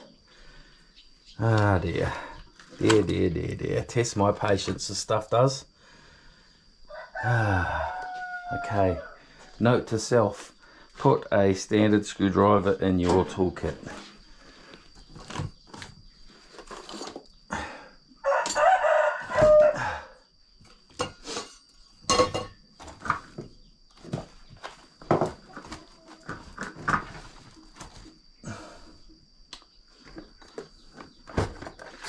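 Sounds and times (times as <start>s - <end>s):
rooster crowing: 6.9s - 9.4s, 18.2s - 20.2s.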